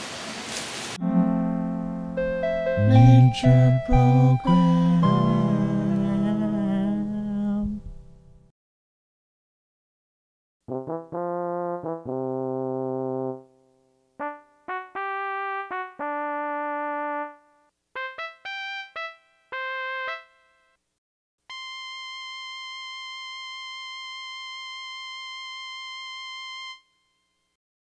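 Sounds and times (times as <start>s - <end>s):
held high keyboard note: 1.0s - 7.7s, 14.2s - 20.6s, 21.5s - 27.0s
electronic keyboard tune: 1.0s - 8.4s, 10.7s - 20.6s, 21.5s - 27.0s.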